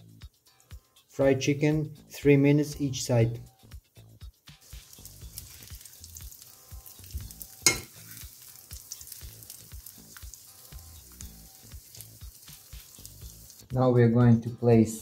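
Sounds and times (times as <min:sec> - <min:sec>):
chicken sizzling in a pan: 0:04.5 - 0:13.8
metal fork clinking on pan: 0:07.6 - 0:08.2.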